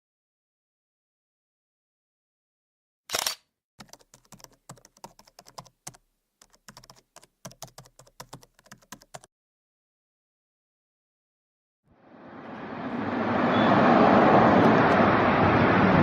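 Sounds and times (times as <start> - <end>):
single sharp click: 3.1 - 3.4
rapid keyboard typing: 3.8 - 9.3.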